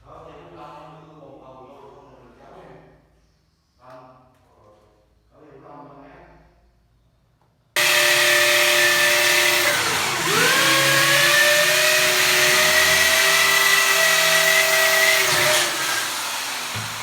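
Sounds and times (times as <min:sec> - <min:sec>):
electric power tool motor running: 0:07.8 - 0:17.0.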